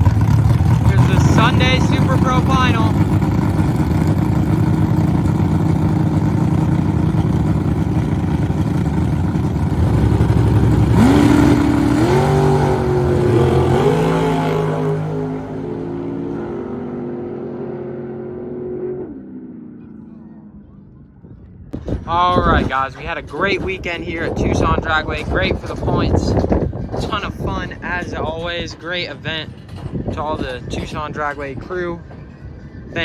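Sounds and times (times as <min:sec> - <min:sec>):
truck engine revving: 0:00.0 - 0:20.8.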